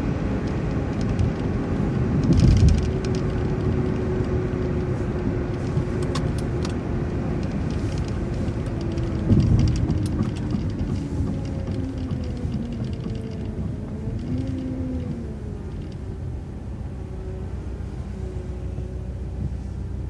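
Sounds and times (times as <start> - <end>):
bus engine and road rumble: 0.0 - 20.0
bus bumps: 2.0 - 15.9.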